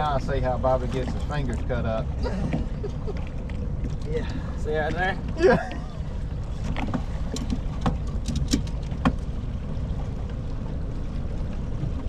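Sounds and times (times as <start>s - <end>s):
low rumble on a boat: 0.0s - 12.0s
sharp knocks and clicks: 6.6s - 9.2s.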